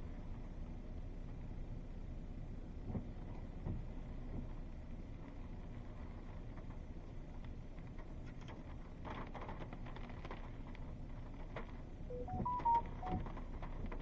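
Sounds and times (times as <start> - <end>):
low steady background noise: 0.0 - 14.0
short electronic beeps: 12.1 - 13.2
faint scattered clicks: 12.1 - 14.0.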